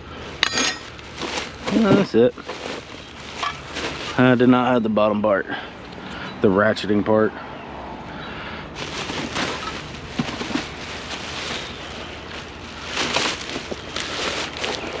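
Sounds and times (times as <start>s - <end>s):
junk rustling and clattering: 0.2s - 4.5s, 8.8s - 15.0s.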